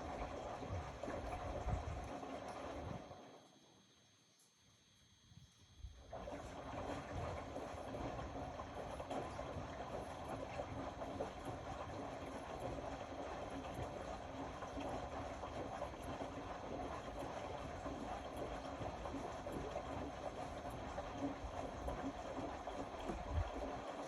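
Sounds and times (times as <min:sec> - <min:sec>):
water sloshing: 0:00.0 - 0:03.4, 0:06.1 - 0:24.0.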